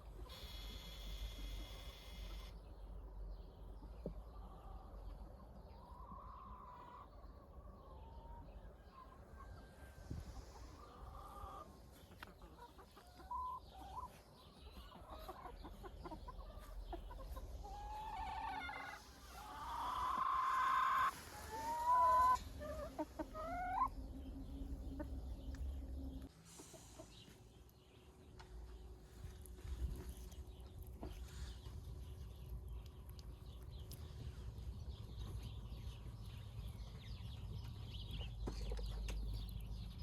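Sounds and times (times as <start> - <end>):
chickens clucking and calling: 0.0 - 28.8, 29.6 - 40.0.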